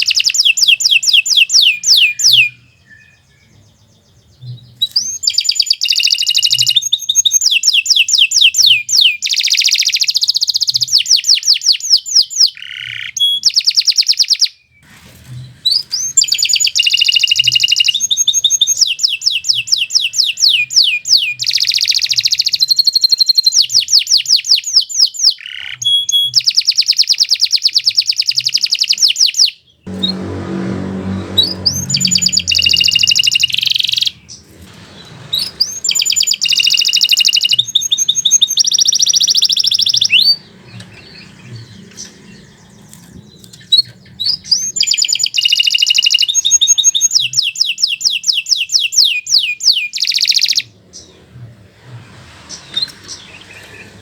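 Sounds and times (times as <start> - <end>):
canary singing trills: 0.0 - 14.8, 15.7 - 51.6
low rumble: 29.9 - 36.1.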